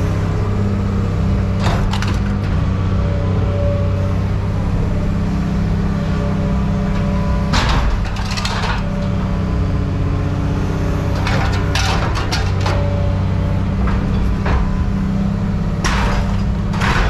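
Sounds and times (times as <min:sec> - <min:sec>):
engine drone: 0:00.0 - 0:17.0
scrap metal clattering: 0:11.2 - 0:12.9.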